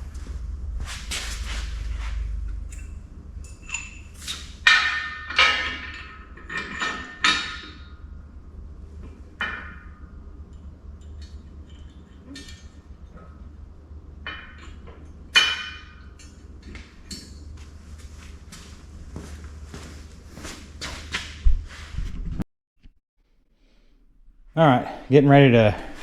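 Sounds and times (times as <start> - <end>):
low steady hum: 0.0 - 20.8
metal clanks: 2.5 - 8.0.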